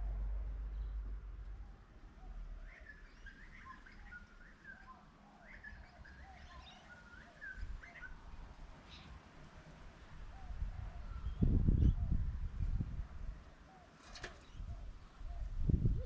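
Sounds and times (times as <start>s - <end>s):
faint low rumble: 0.0s - 2.7s
birds chirping: 1.6s - 8.2s.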